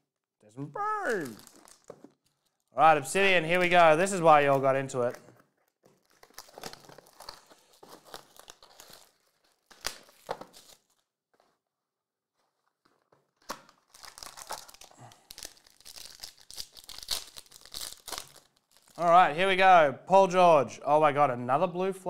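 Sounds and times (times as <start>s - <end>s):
plastic wrapping torn and crinkled: 1.0s - 2.8s, 4.4s - 11.2s, 12.6s - 19.0s.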